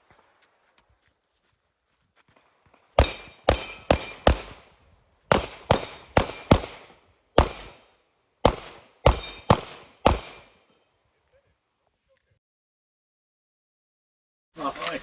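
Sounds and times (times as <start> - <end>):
rapid pistol shots: 3.0 - 4.7, 5.3 - 10.6.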